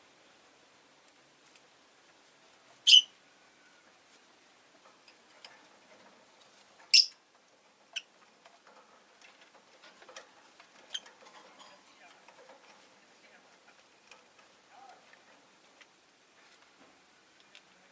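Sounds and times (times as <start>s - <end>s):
lovebird chirping: 2.8s - 3.8s, 6.9s - 7.2s
faint clicks: 16.6s - 17.8s.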